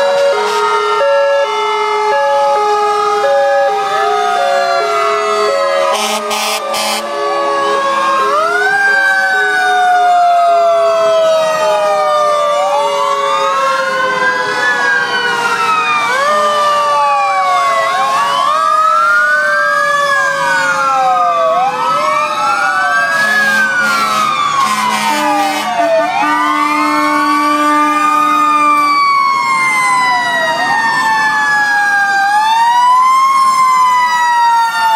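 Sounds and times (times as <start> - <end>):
fire truck sirens wailing: 0.0 - 34.9
low horn blasts: 4.9 - 7.3, 23.2 - 28.8.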